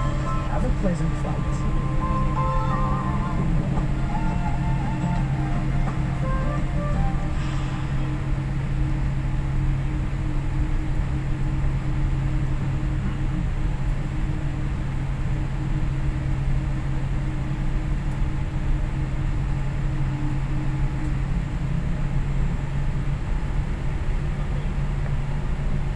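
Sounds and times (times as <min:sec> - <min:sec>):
airliner cabin hum and hiss: 0:00.0 - 0:25.9.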